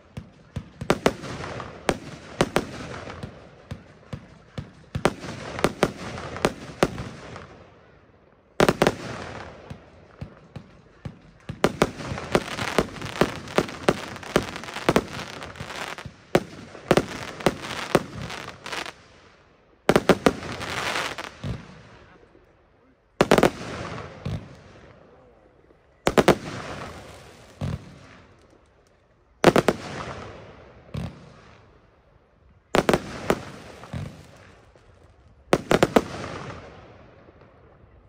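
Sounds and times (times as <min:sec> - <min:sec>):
firework crackling: 0:08.6 - 0:22.1.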